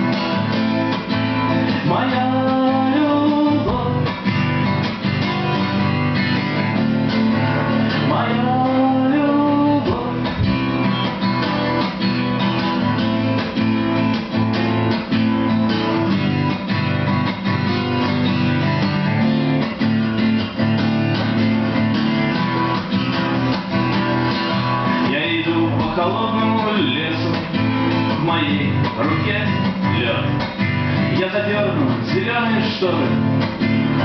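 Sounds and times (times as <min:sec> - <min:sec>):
acoustic guitars playing: 0:00.0 - 0:34.0
man singing: 0:01.7 - 0:04.4, 0:07.4 - 0:10.7, 0:24.9 - 0:30.4, 0:31.0 - 0:33.4.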